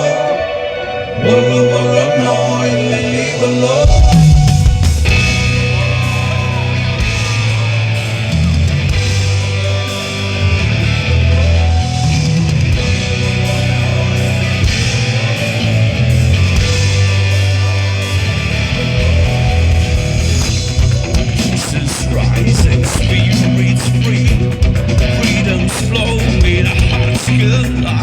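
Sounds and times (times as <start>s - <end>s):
instrumental rock music: 0.0s - 28.0s.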